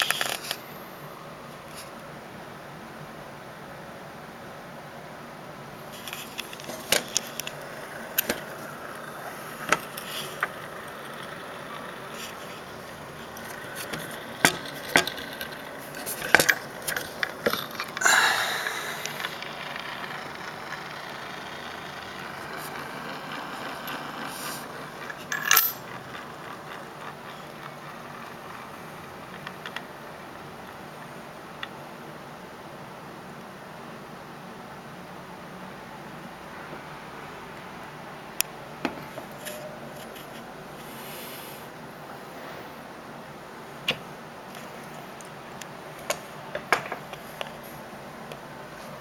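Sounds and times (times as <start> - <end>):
clatter and scrape: 0.0 - 0.6, 5.9 - 18.1, 18.7 - 29.9, 39.0 - 41.0.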